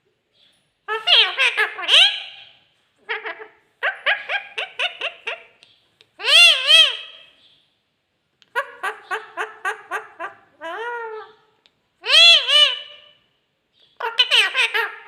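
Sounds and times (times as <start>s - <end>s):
parrot chattering: 0.9s - 5.6s, 6.2s - 7.3s, 8.5s - 13.2s, 14.0s - 15.0s.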